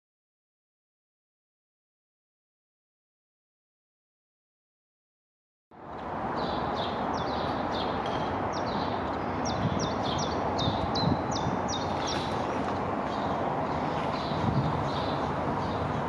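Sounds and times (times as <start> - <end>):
outdoor background noise: 5.7 - 16.0.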